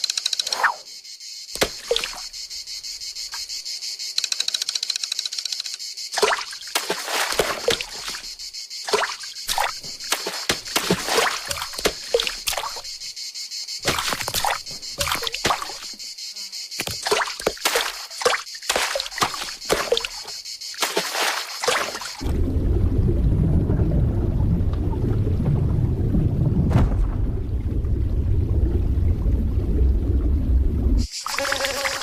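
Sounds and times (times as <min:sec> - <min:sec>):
insects chirping: 0:00.0 - 0:22.3, 0:30.7 - 0:32.0.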